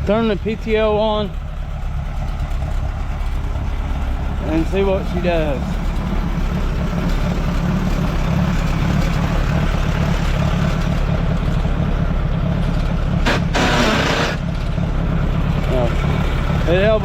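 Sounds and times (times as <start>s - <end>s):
tractor engine idling: 0.0s - 17.0s
harsh burst of noise: 13.2s - 14.5s.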